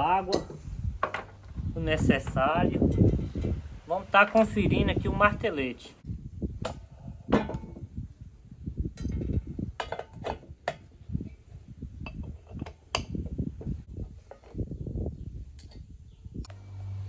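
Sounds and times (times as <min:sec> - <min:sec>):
metal clinks and knocks: 0:00.2 - 0:03.6, 0:08.9 - 0:11.0.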